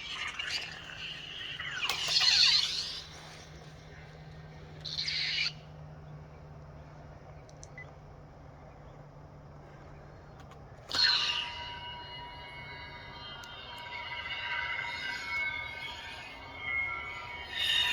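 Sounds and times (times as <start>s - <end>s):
lightsaber low hum: 10.9s - 17.9s.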